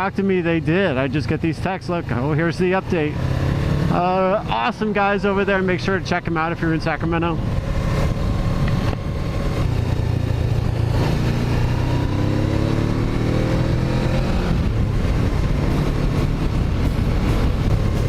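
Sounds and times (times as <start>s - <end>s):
motorcycle engine accelerating: 1.4s - 18.0s.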